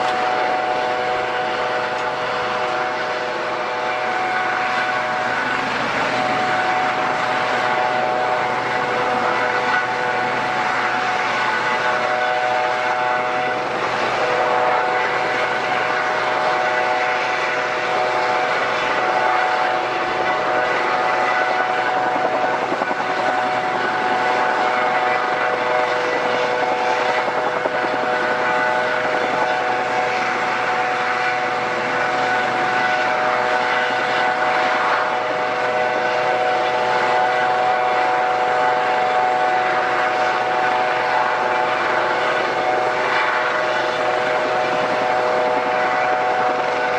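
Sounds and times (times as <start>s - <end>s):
airliner engines whining: 0.0s - 46.9s.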